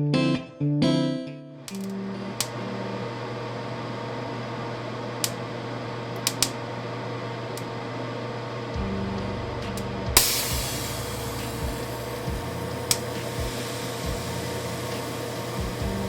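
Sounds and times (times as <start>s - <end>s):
electrical hum: 1.6s - 16.0s
sharp clicks: 6.2s - 6.6s
deep loud buzz: 8.8s - 16.0s.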